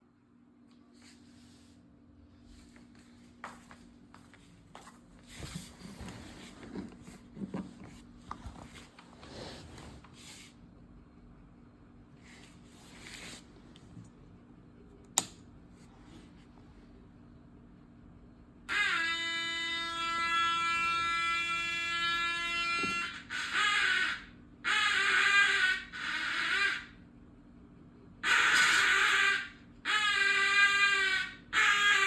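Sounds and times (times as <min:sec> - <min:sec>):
rustling and handling noises: 0:02.5 - 0:10.7.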